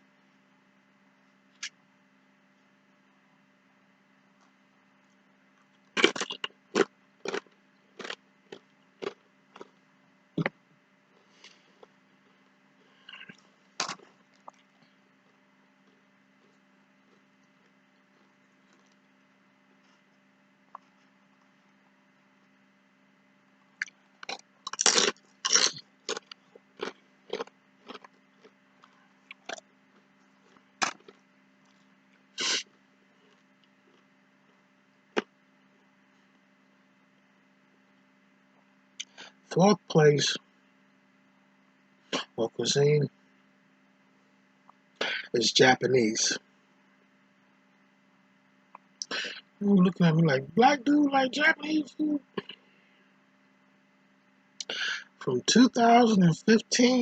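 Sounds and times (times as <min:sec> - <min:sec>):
person chewing crunchy chips: 0:06.0 - 0:09.8, 0:13.0 - 0:14.8, 0:23.8 - 0:29.6, 0:30.4 - 0:31.2, 0:32.4 - 0:34.0.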